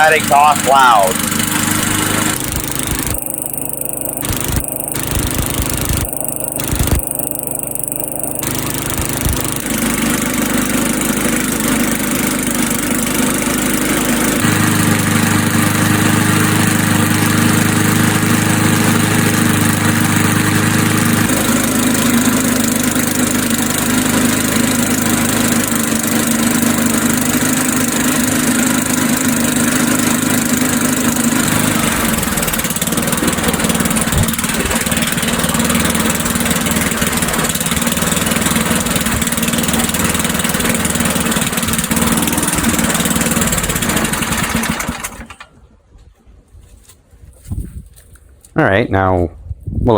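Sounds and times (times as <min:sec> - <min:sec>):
lawn mower engine running: 0:00.0 - 0:45.8.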